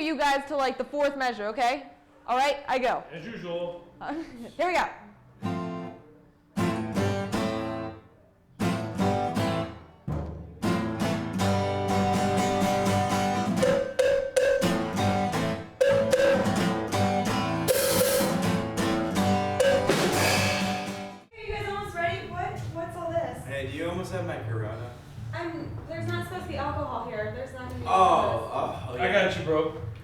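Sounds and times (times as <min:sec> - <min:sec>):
band playing with bass and drums: 0:08.8 - 0:21.2
guitar chords: 0:10.6 - 0:21.3
cymbal crash: 0:17.6 - 0:18.6, 0:19.5 - 0:21.1.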